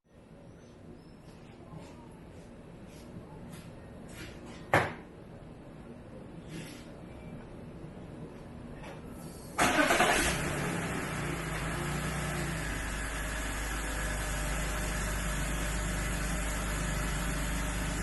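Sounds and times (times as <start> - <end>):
car engine starting and idling: 9.6 - 18.0.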